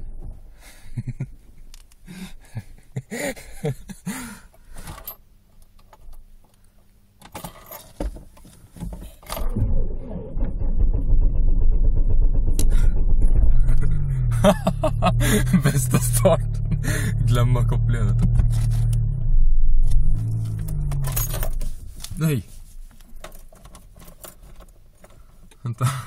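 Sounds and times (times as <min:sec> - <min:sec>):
car engine idling: 0:09.4 - 0:21.9
rustling: 0:20.2 - 0:25.4
keys jangling: 0:20.7 - 0:21.7, 0:23.2 - 0:25.2.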